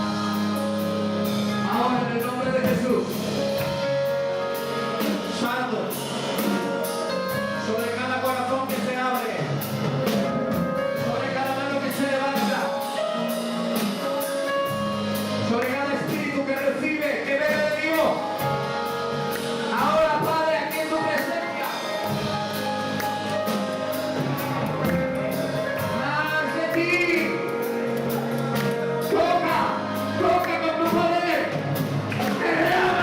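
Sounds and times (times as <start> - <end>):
worship music: 0.0 - 33.0
steady drum beat: 21.6 - 33.0.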